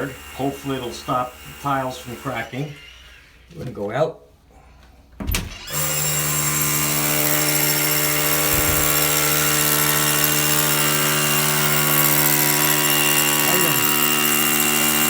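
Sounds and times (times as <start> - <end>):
engine-driven equipment droning: 8.4 - 9.1
short knock: 8.5 - 9.0.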